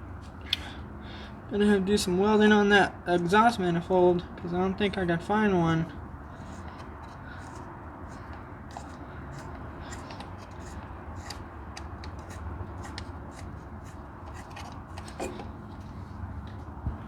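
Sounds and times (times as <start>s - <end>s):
metallic clicks and scraping: 6.4s - 16.6s.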